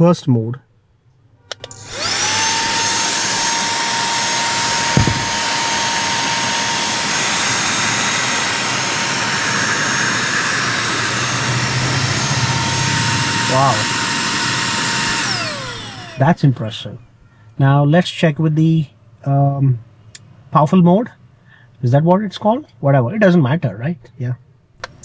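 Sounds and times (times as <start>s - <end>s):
handheld vacuum cleaner whine: 1.6s - 16.6s
knock: 4.9s - 5.4s.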